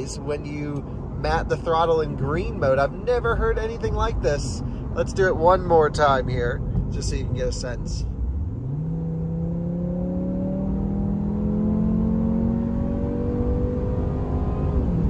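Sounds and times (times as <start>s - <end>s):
car engine accelerating in cabin: 8.2s - 15.0s.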